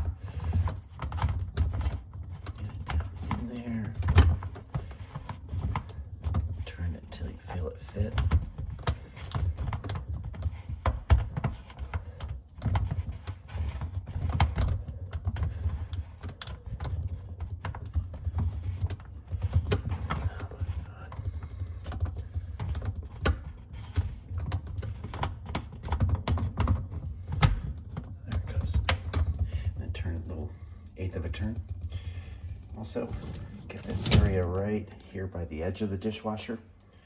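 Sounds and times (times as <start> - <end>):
plastic clicks and knocks: 8.1 - 29.7.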